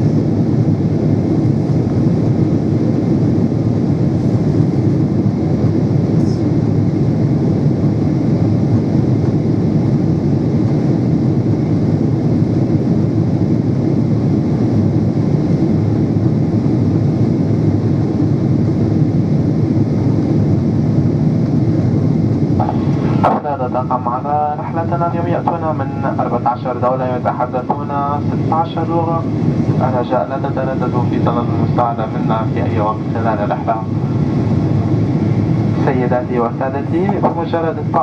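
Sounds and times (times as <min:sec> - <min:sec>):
rushing air: 0:00.0 - 0:08.8, 0:22.1 - 0:23.4
jet engine rumble in cabin: 0:00.0 - 0:38.0.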